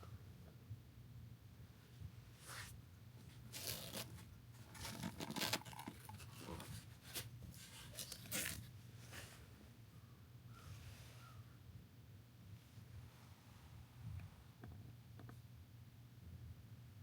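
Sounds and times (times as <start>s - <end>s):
rustling and scraping handling: 2.4s - 9.6s.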